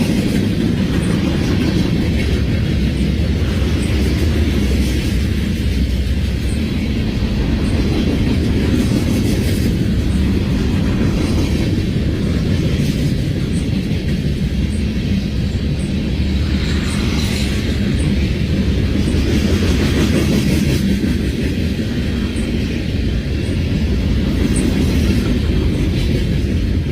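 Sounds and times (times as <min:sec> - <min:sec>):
freight train rumbling by: 0:00.0 - 0:26.9.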